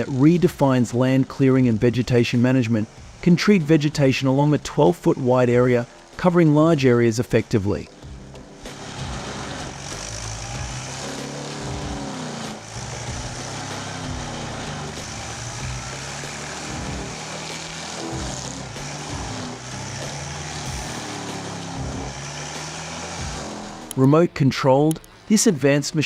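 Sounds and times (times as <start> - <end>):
mulching noise: 0.0 - 25.3
mulcher engine running: 0.0 - 26.0.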